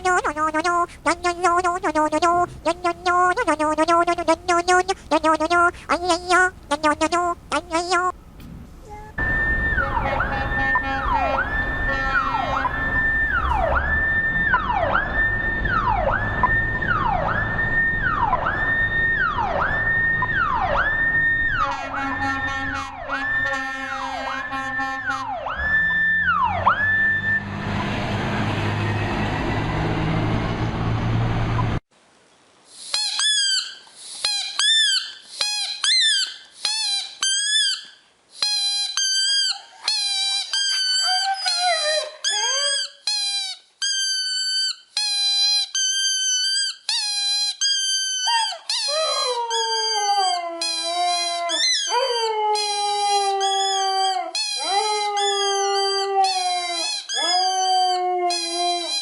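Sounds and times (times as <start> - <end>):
high-pitched squeaks: 0.0 - 8.1, 33.0 - 59.0
hissing noise: 0.0 - 8.1
dog whining and howling: 39.1 - 59.0.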